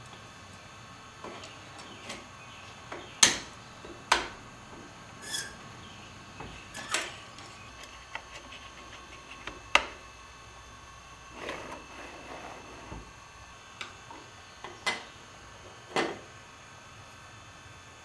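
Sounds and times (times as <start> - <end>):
small metal parts clicking: 6.7 - 7.6.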